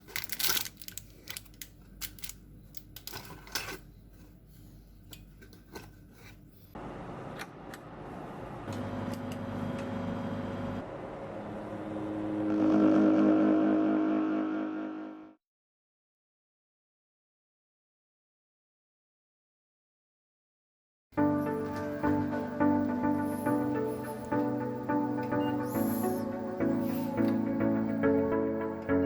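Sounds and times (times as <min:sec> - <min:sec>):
mechanical hum: 0:00.0 - 0:15.4.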